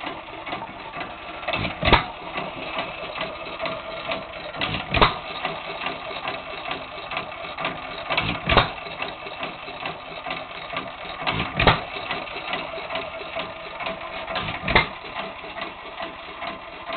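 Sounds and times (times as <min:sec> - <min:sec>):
valve gear clicking: 0:00.0 - 0:16.9.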